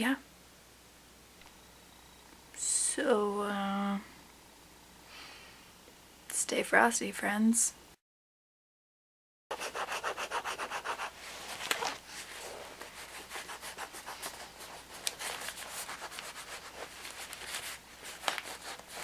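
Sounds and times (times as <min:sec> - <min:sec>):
rustling: 0:11.2 - 0:19.0.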